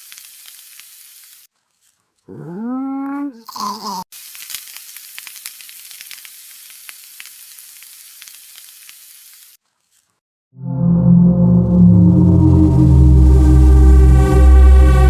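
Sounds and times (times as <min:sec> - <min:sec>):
food sizzling in frying pan: 0:00.0 - 0:01.5, 0:04.1 - 0:09.6.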